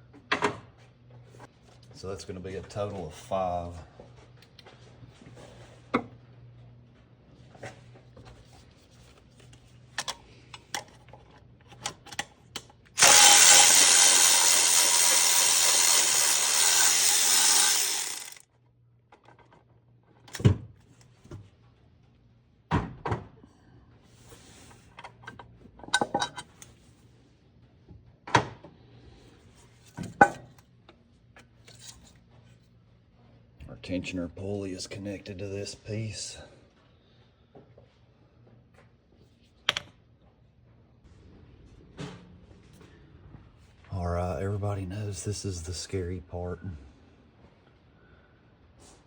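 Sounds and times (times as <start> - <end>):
handheld power tool running: 13.0 - 18.4.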